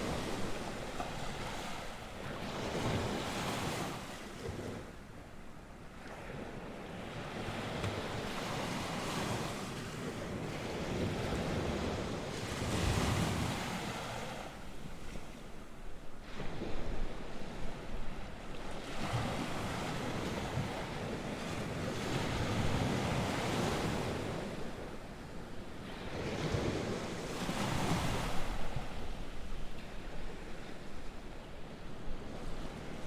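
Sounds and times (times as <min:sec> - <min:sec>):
waves breaking on shore: 0:00.0 - 0:33.0.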